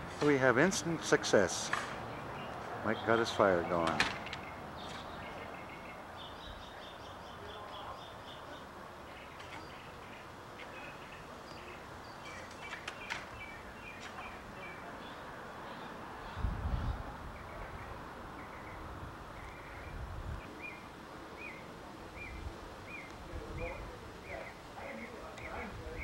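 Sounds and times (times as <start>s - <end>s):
steady hiss: 0.0s - 2.0s
birds chirping: 0.0s - 26.0s.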